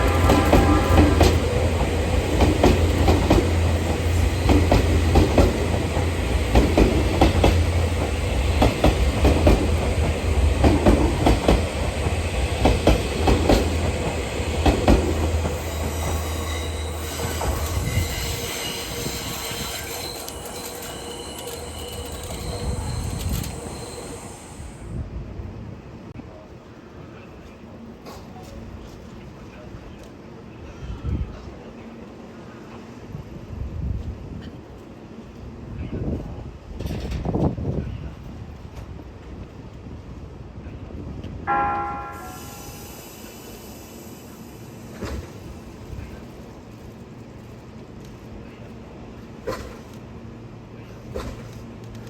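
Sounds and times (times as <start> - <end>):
train wheels clattering over rails: 0.0 - 24.7, 44.8 - 46.6, 49.4 - 50.1, 50.9 - 52.0
low train hum: 0.0 - 52.0
wheel squeal: 15.5 - 24.7.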